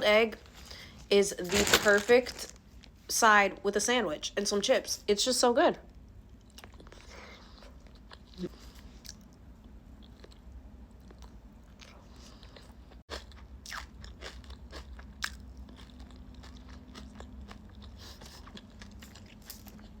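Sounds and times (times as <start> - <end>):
person chewing and biting: 11.0 - 20.0.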